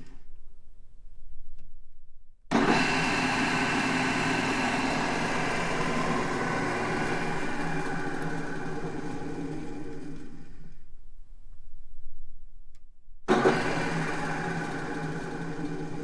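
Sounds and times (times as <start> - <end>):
drill press whirring: 2.5 - 10.9, 13.3 - 16.0.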